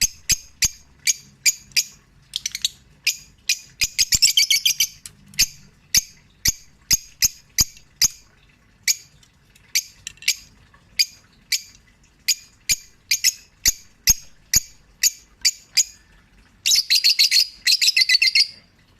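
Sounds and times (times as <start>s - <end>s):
lovebirds chirping: 0.0s - 8.2s.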